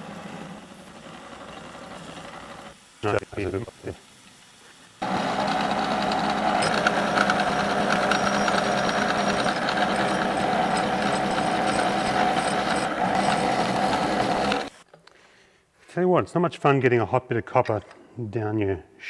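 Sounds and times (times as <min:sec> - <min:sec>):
milling machine cutting metal: 0:00.0 - 0:03.8, 0:05.0 - 0:14.8
constant ringing tone: 0:05.0 - 0:14.8
spindle hum: 0:05.0 - 0:14.8.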